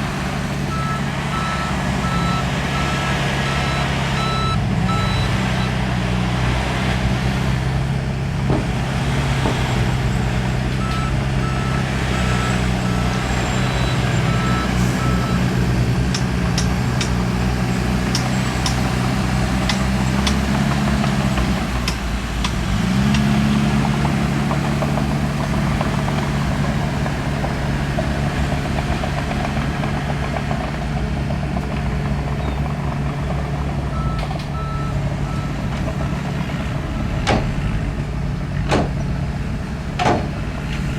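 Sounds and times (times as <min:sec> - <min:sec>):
heavy diesel engine under load: 0:00.0 - 0:40.9
reversing alarm beeping: 0:00.7 - 0:05.7, 0:10.8 - 0:15.5.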